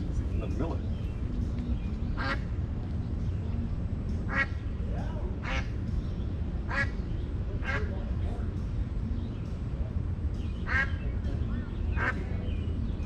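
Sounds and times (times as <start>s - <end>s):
steady low rumble: 0.0s - 13.0s
duck quacking: 12.0s - 12.3s.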